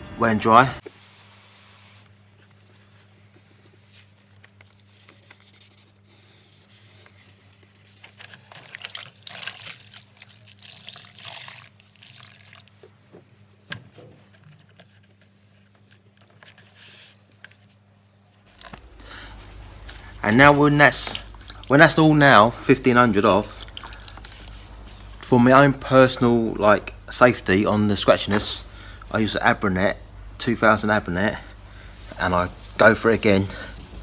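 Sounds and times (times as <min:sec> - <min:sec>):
steady low hum: 0:18.5 - 0:34.0
wet sanding strokes: 0:32.0 - 0:34.0.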